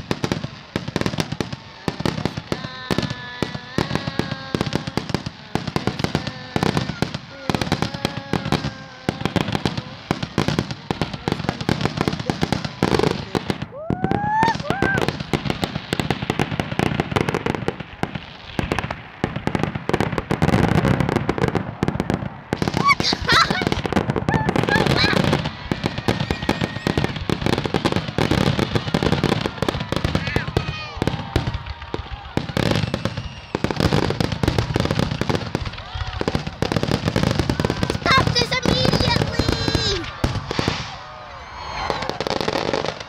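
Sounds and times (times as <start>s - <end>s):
fireworks bangs and crackles: 0.0s - 43.0s.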